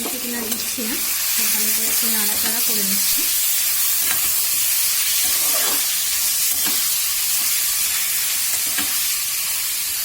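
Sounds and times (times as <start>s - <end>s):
chicken sizzling in oil: 0.0s - 10.0s
spatula scraping pan: 5.0s - 6.9s.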